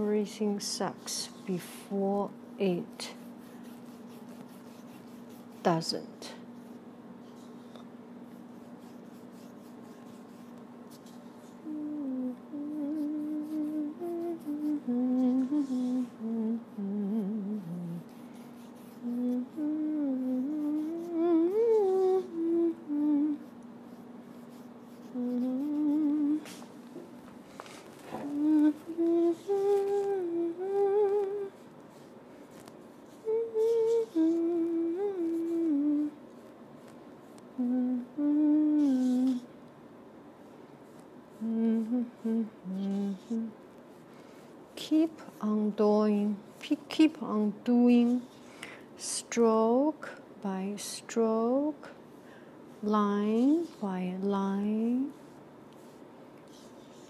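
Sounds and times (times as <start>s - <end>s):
steady low hum: 0.0s - 57.0s
paintbrush scratchy strokes: 2.6s - 6.0s, 6.6s - 11.6s, 12.8s - 19.6s, 20.2s - 22.2s, 23.4s - 26.7s, 55.1s - 57.0s
woman humming a tune: 11.4s - 23.6s, 24.5s - 26.7s, 28.1s - 31.6s, 33.1s - 36.3s, 37.6s - 39.5s, 41.3s - 43.6s, 44.8s - 48.4s, 49.0s - 52.0s, 52.8s - 55.2s.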